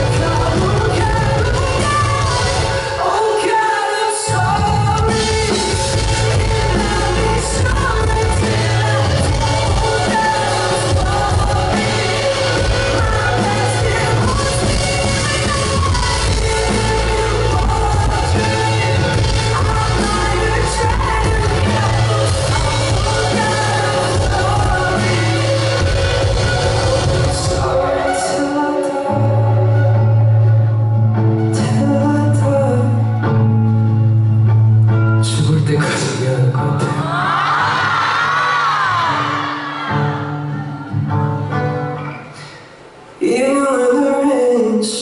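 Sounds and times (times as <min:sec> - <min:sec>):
person singing: 0:00.0 - 0:33.5, 0:43.2 - 0:45.0
live pop band music: 0:00.0 - 0:45.0.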